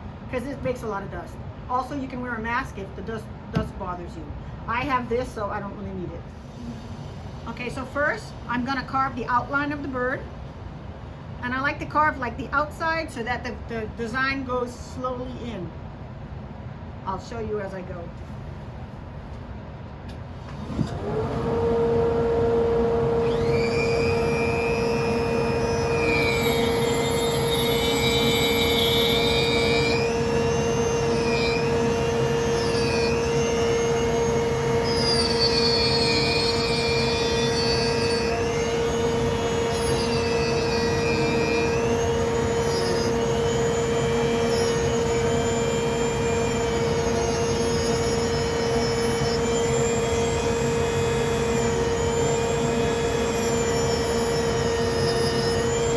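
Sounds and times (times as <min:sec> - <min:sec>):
rotary tool whining cutting wood: 0:20.8 - 0:55.9.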